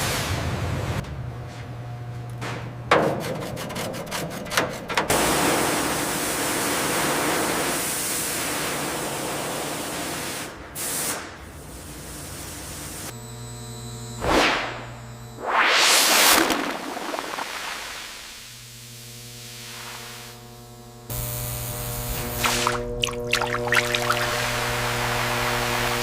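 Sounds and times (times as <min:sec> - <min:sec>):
low steady hum: 0:20.4 - 0:26.0.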